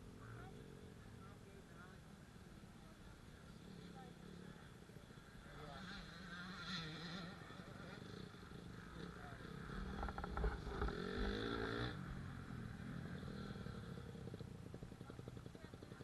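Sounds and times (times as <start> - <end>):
dirt bike engine revving: 5.1 - 16.0.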